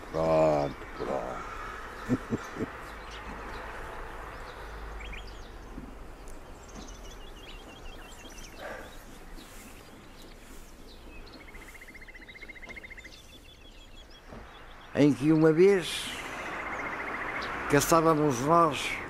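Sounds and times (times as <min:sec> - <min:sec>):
background hiss: 0:00.0 - 0:19.0
songbirds calling: 0:00.0 - 0:19.0
bird trill: 0:06.4 - 0:19.0.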